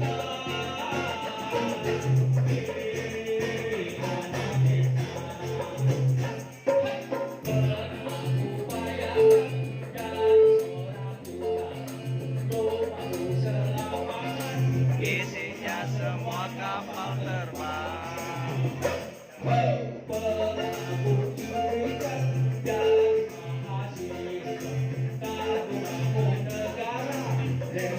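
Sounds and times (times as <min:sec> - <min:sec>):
instrumental band music: 0:00.0 - 0:16.5, 0:20.1 - 0:27.9.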